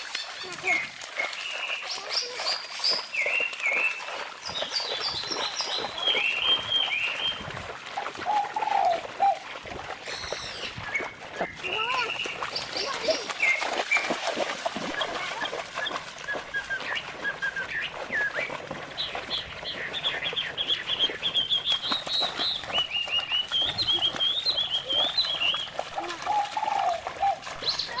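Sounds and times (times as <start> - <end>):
bird chirping: 15.0 - 28.0.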